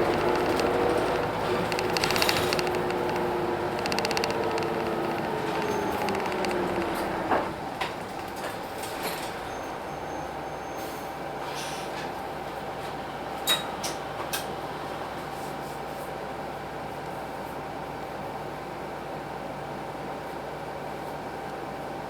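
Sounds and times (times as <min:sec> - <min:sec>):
sharp clicks: 0:00.0 - 0:07.0
bus diesel engine running: 0:00.0 - 0:11.3.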